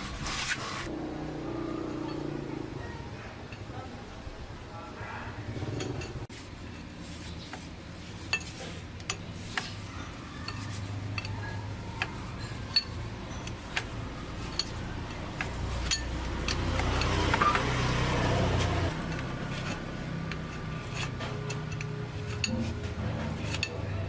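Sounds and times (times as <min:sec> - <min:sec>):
metal tools clinking: 0:01.8 - 0:03.8, 0:05.6 - 0:24.0.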